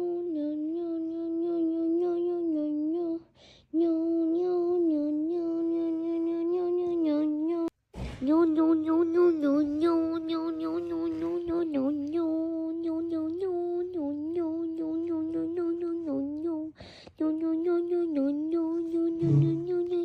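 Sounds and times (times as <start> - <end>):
voice droning monotone hum: 19.0 - 20.0.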